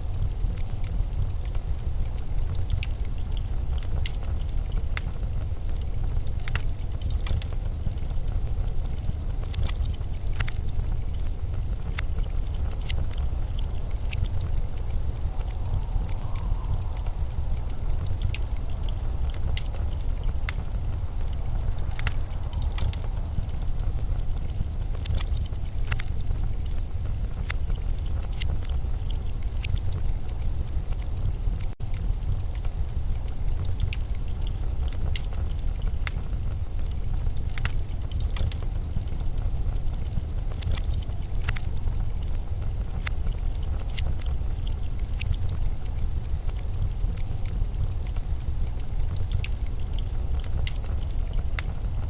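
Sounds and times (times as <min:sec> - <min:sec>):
blizzard wind rumbling: 0:00.0 - 0:52.0
sharp crackles and clicks: 0:00.0 - 0:52.0
storm wind blowing: 0:10.2 - 0:35.5.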